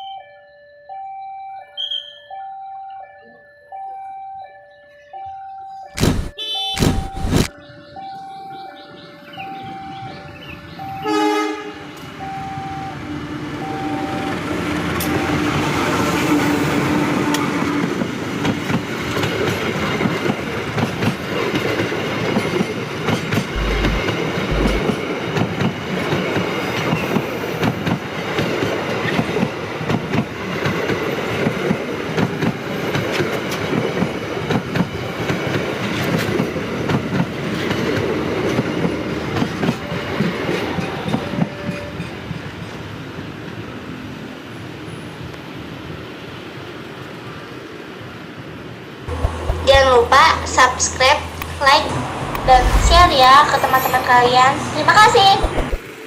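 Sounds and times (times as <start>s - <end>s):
level crossing alarm two-tone beeping: 0.0s - 11.1s, 12.2s - 14.5s, 23.6s - 24.9s
train horn: 11.0s - 14.2s.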